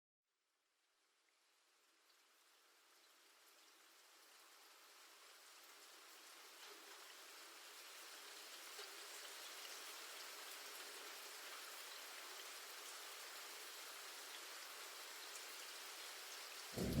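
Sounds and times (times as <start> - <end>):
light rain patter: 1.6 - 17.0.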